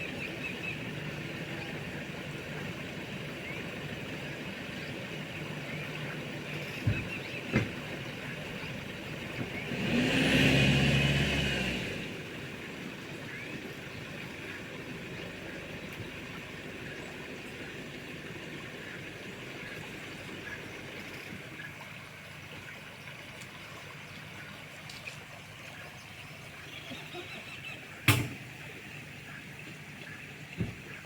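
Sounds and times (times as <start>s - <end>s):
outdoor ambience hiss: 0.0s - 31.0s
engine passing: 7.4s - 21.6s.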